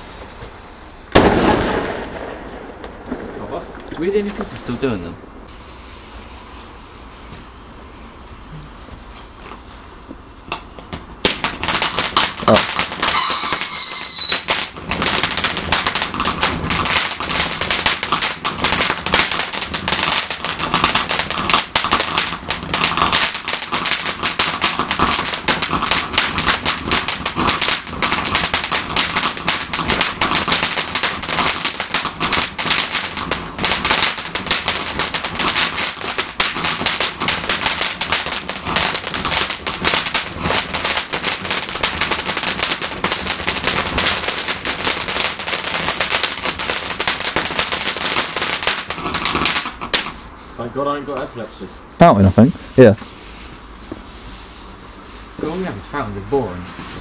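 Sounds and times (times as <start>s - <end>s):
firework fountain crackling: 0.0s - 57.0s
falling firework whistle: 12.5s - 15.8s.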